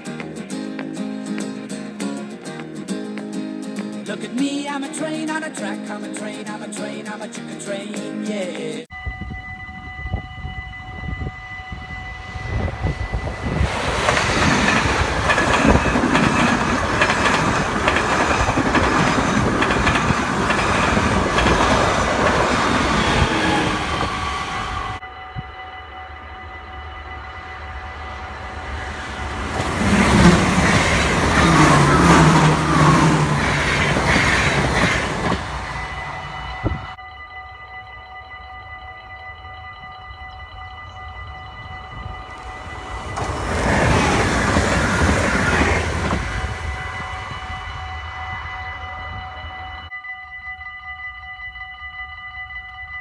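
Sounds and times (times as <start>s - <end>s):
electric trains passing at speed: 8.8s - 53.0s
level crossing bell ringing: 8.9s - 53.0s
wheel and rail rumble: 11.3s - 25.0s, 27.2s - 37.0s, 41.2s - 49.7s.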